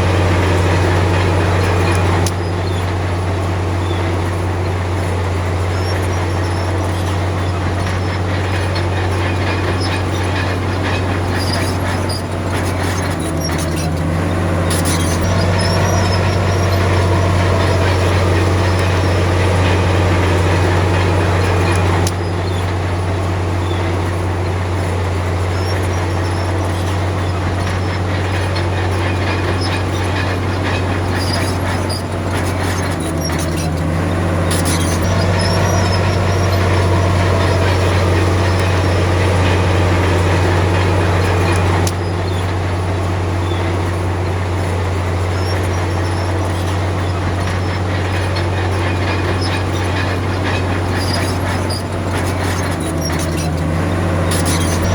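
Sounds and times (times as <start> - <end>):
heavy diesel engine droning: 0.0 - 54.9
metallic clanks and rattles: 0.0 - 54.9.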